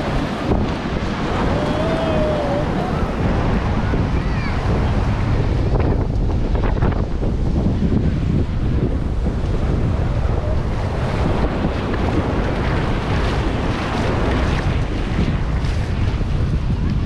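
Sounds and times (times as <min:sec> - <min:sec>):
ocean surf breaking: 0:00.0 - 0:16.4
wind buffeting microphone: 0:00.0 - 0:17.0.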